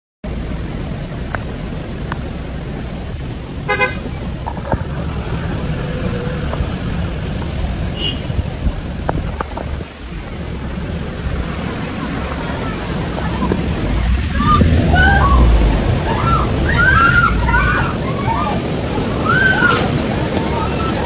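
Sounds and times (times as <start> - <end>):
traffic rumble: 0.2 - 21.0
car horn honk: 3.7 - 4.1, 7.9 - 8.3.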